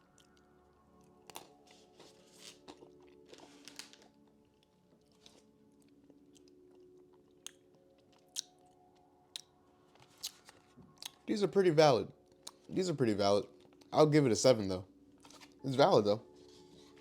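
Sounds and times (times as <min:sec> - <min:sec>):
chewing crunchy snack: 0:00.0 - 0:11.3, 0:12.4 - 0:12.7.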